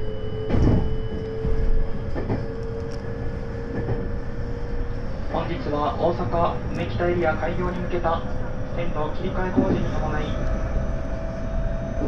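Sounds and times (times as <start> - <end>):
traction motor whine: 0.0 - 5.3, 9.8 - 12.0
train wheels rumbling: 0.0 - 12.0.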